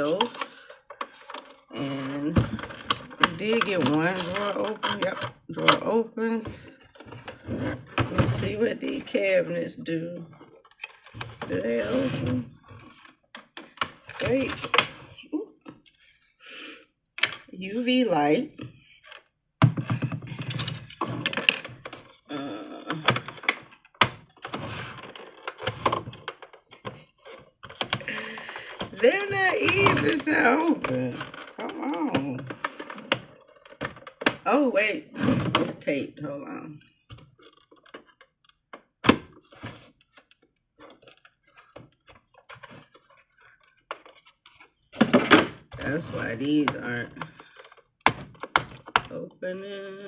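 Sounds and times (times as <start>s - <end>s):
plastic toy doors clicking: 0.0s - 6.0s, 19.8s - 34.6s, 36.9s - 44.2s, 45.0s - 49.1s.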